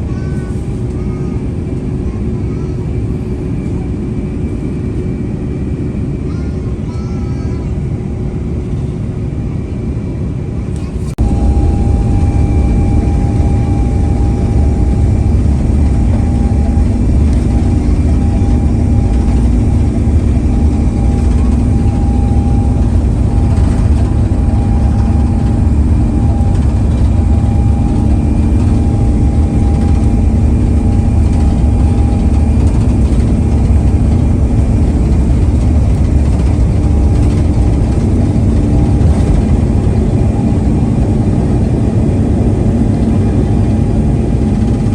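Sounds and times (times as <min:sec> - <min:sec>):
aircraft cabin engine rumble: 0:00.0 - 0:44.9
steady hum: 0:09.8 - 0:44.9.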